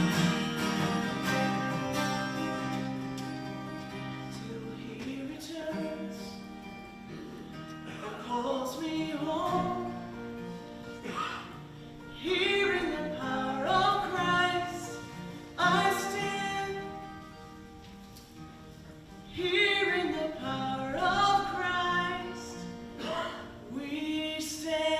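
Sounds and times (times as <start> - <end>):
slow song with wavering vocals: 4.0 - 6.6, 7.9 - 10.6, 11.2 - 17.4, 19.2 - 24.9.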